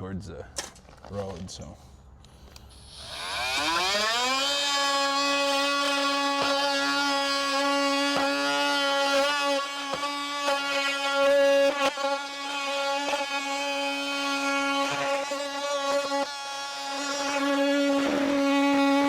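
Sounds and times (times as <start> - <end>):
oscillating multi-tool whine: 2.6 - 19.0.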